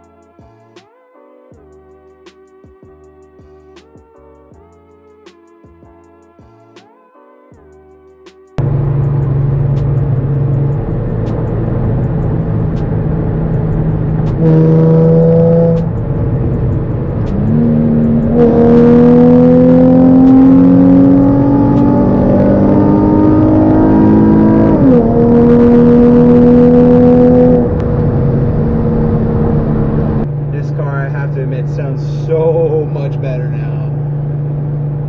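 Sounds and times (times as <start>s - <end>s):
car engine accelerating: 8.6s - 35.0s.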